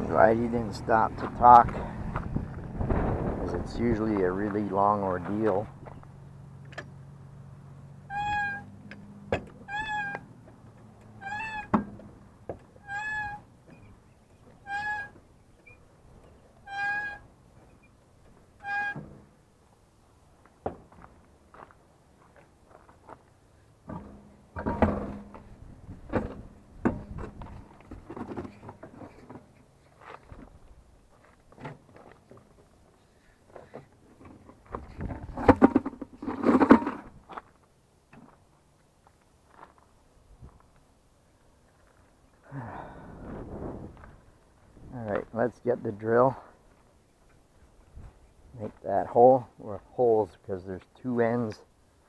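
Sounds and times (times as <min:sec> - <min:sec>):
tools and parts clattering: 0:33.6 - 0:37.1.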